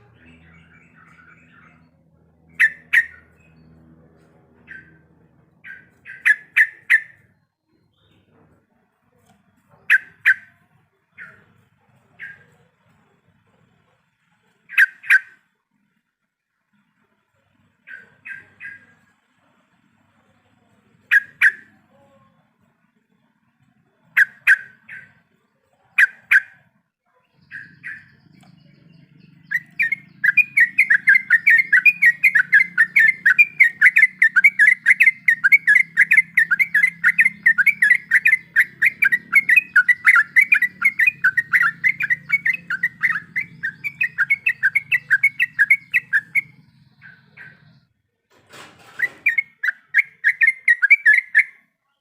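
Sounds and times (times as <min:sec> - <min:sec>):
bulbul calling: 0:00.0 - 0:03.6, 0:04.6 - 0:08.3, 0:09.7 - 0:12.7, 0:14.6 - 0:15.5, 0:17.9 - 0:19.0, 0:21.0 - 0:21.8, 0:24.0 - 0:25.3, 0:26.0 - 0:47.9, 0:48.9 - 0:51.6
faint low hum: 0:00.0 - 0:49.4.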